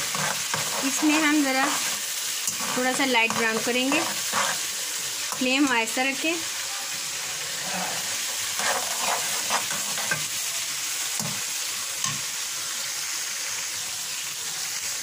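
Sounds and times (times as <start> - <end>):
fork scraping a pan: 0.0 - 5.5, 7.4 - 10.4, 11.2 - 11.4
vegetables sizzling in hot oil: 0.0 - 15.0.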